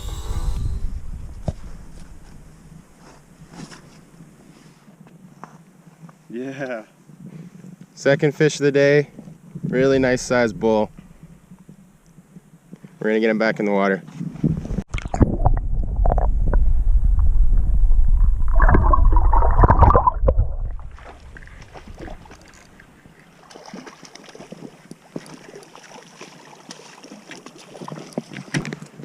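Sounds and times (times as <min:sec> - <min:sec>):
microphone handling noise: 0:00.0 - 0:04.2, 0:14.1 - 0:22.3
wind rumble on microphone: 0:00.0 - 0:04.4, 0:09.1 - 0:13.0, 0:14.1 - 0:23.1
river background: 0:00.0 - 0:15.4, 0:17.5 - 0:29.0
water splashing and sloshing: 0:14.6 - 0:29.0.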